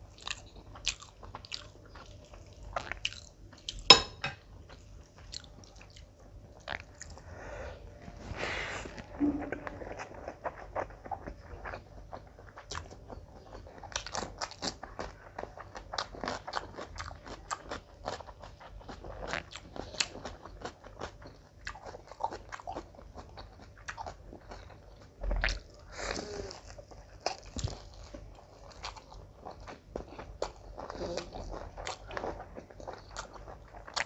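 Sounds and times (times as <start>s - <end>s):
wet chewing mouth clicks: 5.3s - 7.2s.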